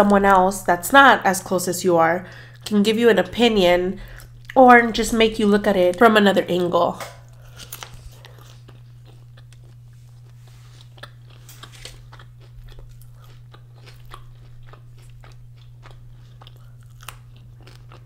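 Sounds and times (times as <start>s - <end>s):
steady low hum: 0.0s - 18.0s
chewing with wet crunches: 4.0s - 4.6s, 7.2s - 18.0s.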